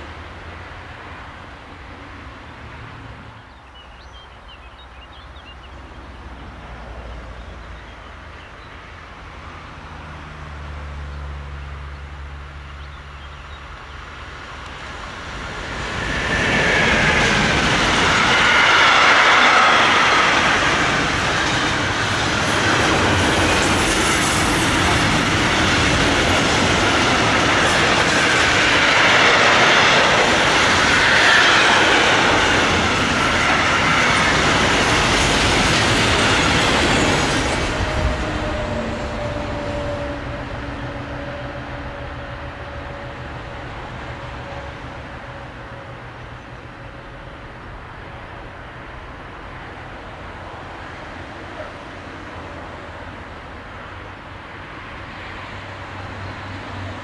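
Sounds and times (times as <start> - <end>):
wheels rattling over rails: 14.7 - 44.4.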